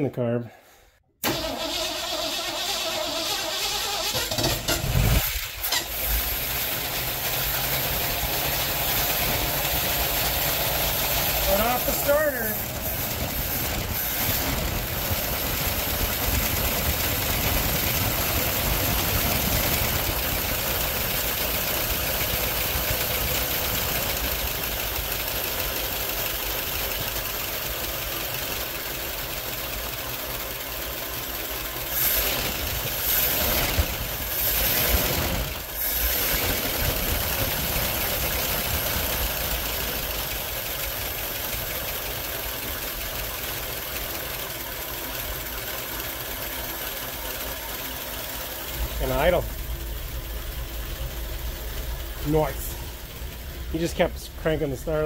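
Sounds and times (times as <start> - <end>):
starter motor cranking: 1.2 - 30.5
car engine running: 2.5 - 55.0.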